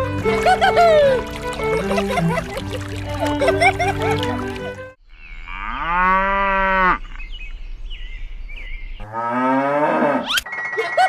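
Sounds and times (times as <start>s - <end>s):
cow mooing: 5.5s - 7.1s.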